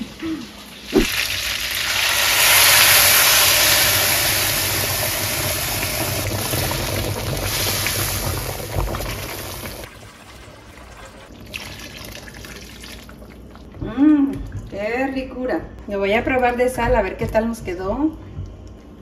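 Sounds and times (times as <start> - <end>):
sauce sizzling in hot pan: 0.7 - 9.9.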